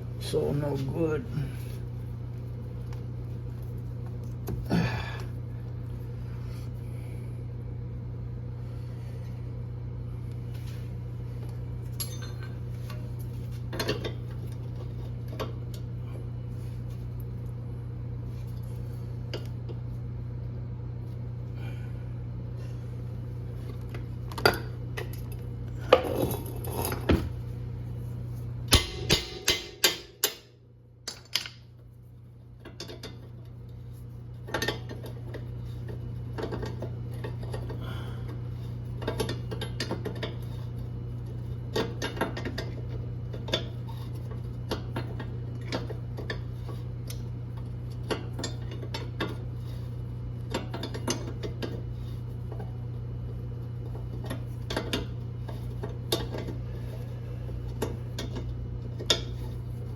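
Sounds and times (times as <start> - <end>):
steady low hum: 0.0 - 59.9
hand tools and metal parts clinking: 11.9 - 13.0.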